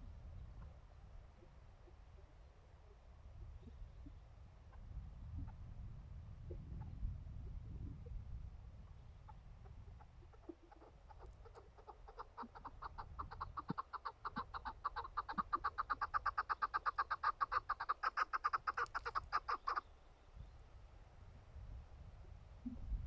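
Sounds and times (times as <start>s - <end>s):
partridge clucking calls: 9.9s - 19.9s.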